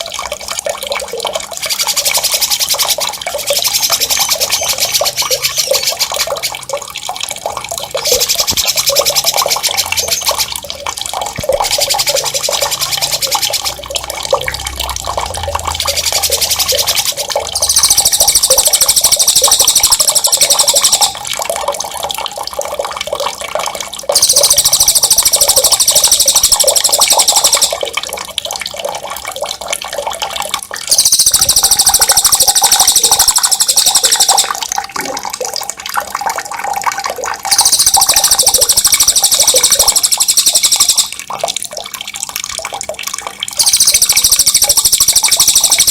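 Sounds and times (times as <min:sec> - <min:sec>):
running splashing water: 0:00.0 - 0:45.9
songbird rapid trills: 0:01.6 - 0:06.8, 0:07.4 - 0:10.6, 0:11.4 - 0:14.2, 0:15.2 - 0:21.2, 0:24.1 - 0:27.9, 0:30.9 - 0:34.6, 0:37.5 - 0:41.3, 0:43.6 - 0:45.9.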